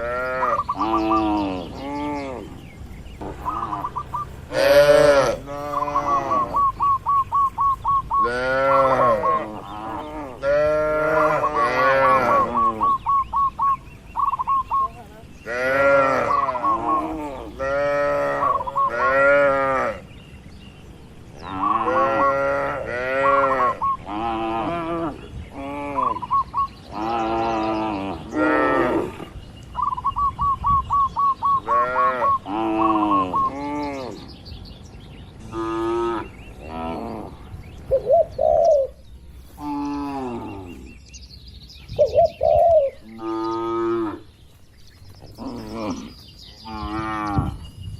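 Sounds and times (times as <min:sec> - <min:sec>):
cattle mooing: 0:04.5 - 0:06.8, 0:08.2 - 0:13.0, 0:15.5 - 0:20.0, 0:21.5 - 0:26.2.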